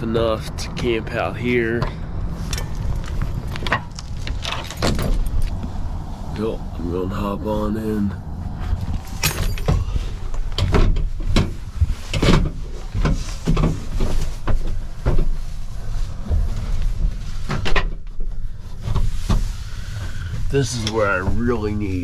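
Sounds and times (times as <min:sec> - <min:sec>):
steady low rumble: 0:00.0 - 0:22.0
knocks and scrapes in truck bed: 0:01.7 - 0:05.8, 0:09.1 - 0:22.0.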